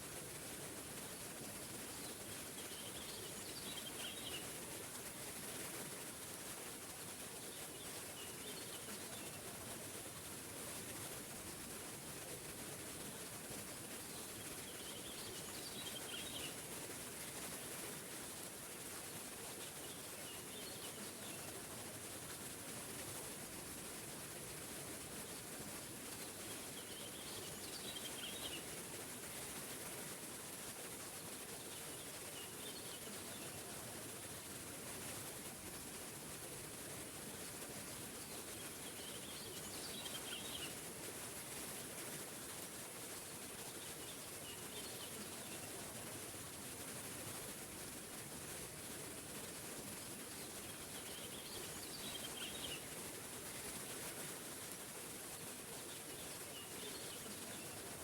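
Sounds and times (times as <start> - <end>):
songbird singing: 38.8 - 40.7, 50.7 - 52.9.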